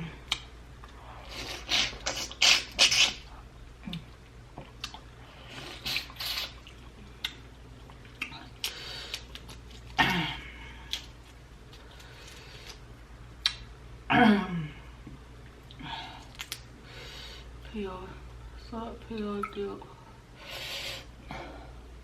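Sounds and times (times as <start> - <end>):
lip smacks: 0.2 - 3.2, 3.8 - 5.0, 13.4 - 13.7, 15.6 - 16.7
wet slurping and sucking: 1.2 - 3.3, 5.3 - 6.9
small mouth clicks: 13.4 - 13.7.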